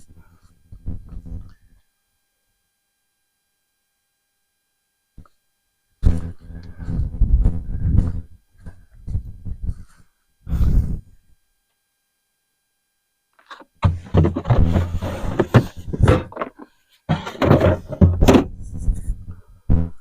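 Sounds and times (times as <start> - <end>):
tools clattering in plastic container: 13.9 - 18.4.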